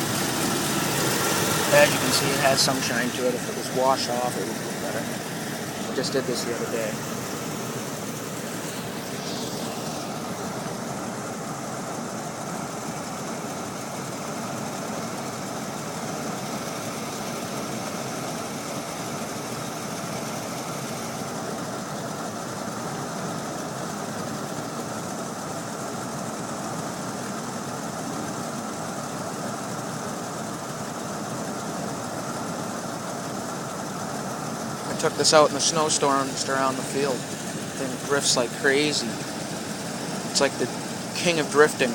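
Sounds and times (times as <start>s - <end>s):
car engine idling: 0.0s - 12.1s, 34.1s - 41.9s.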